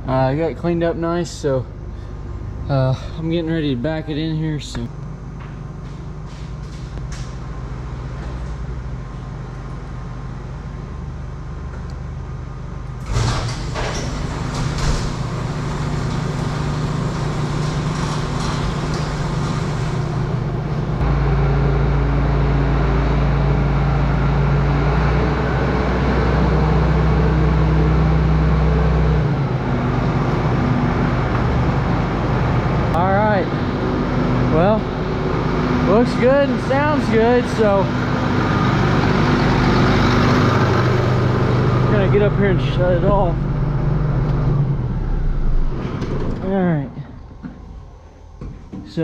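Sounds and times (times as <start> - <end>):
tractor diesel engine running: 0.0 - 49.0
engine clattering: 12.8 - 49.0.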